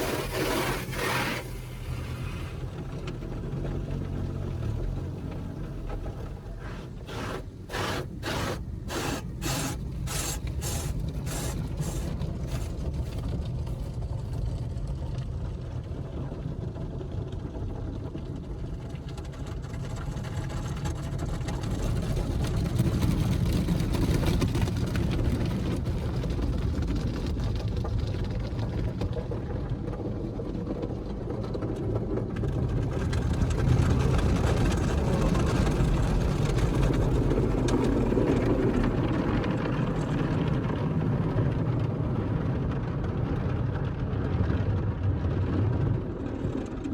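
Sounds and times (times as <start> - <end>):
car wash swishing: 0.0 - 14.3, 33.0 - 42.4
machinery and water rumble: 0.0 - 46.9.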